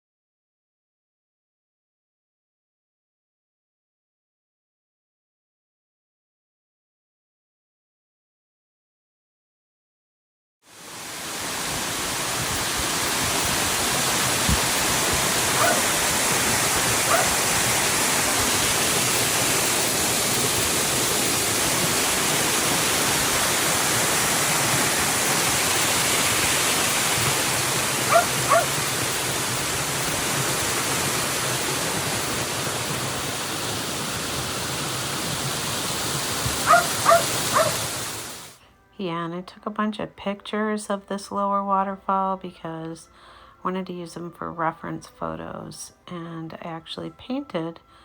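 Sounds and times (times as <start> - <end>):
small waterfall rushing: 10.7 - 38.6
dog yipping: 15.6 - 16.0, 17.0 - 17.4, 28.1 - 28.8, 36.6 - 37.8.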